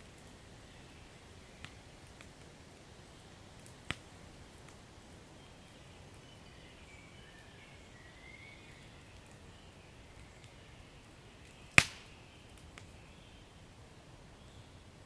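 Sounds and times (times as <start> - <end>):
fire rumbling: 0.0 - 6.9
fire crackle: 0.0 - 15.0.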